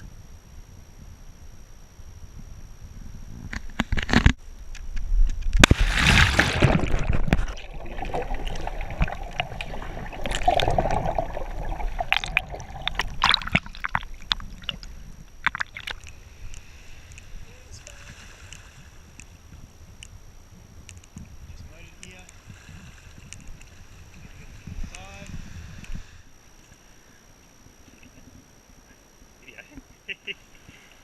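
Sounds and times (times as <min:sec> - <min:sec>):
water sloshing and splashing: 0:05.6 - 0:16.1.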